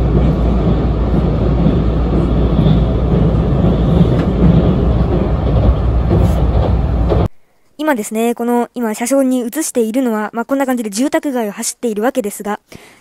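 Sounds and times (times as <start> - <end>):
train running over a bridge: 0.0 - 7.3.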